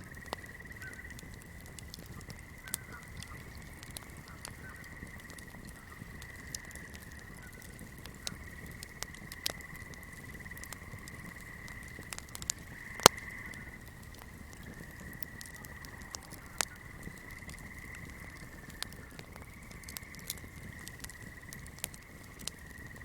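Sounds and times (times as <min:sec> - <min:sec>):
fire crackling and popping: 0:00.0 - 0:23.0.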